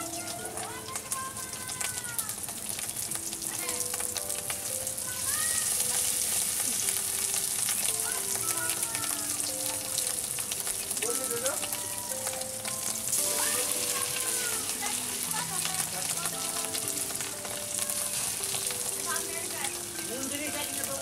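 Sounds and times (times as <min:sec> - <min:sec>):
fritters sizzling in hot oil: 0:00.0 - 0:21.0.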